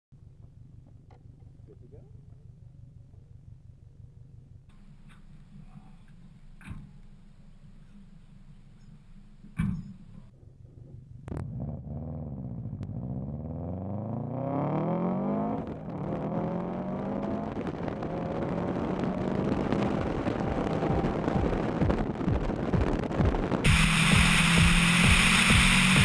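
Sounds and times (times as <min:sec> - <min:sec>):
car engine accelerating hard: 0:11.3 - 0:26.0.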